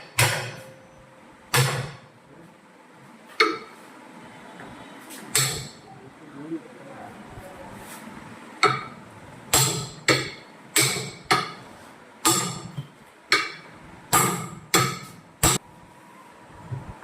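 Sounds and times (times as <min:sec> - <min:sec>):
hammer striking metal: 0:00.0 - 0:00.8, 0:01.5 - 0:02.1, 0:03.4 - 0:03.8, 0:05.3 - 0:05.8, 0:08.6 - 0:11.6, 0:12.2 - 0:15.6.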